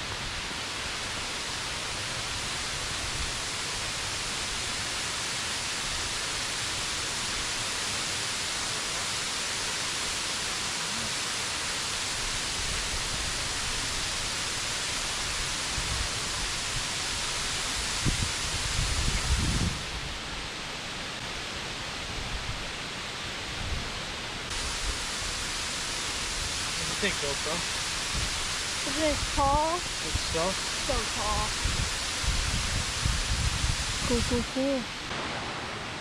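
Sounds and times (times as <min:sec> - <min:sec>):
waterfall rushing: 0:00.0 - 0:22.0, 0:24.0 - 0:36.0.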